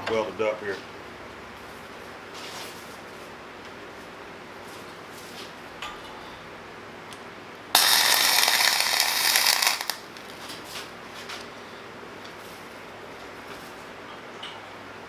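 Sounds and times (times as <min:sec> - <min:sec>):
welding arc crackling: 0:07.7 - 0:10.4.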